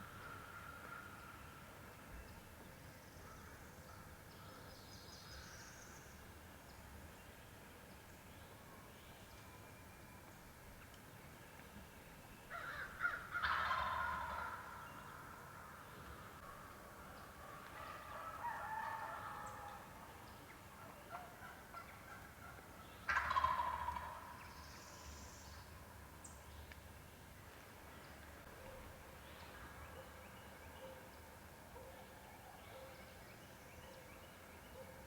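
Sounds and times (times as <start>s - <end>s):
wild turkey gobbling: 12.6s - 24.6s.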